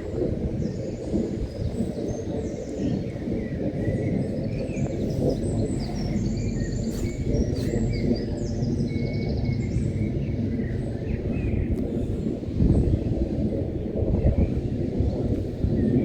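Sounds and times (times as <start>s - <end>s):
small birds chirping: 2.4s - 9.8s.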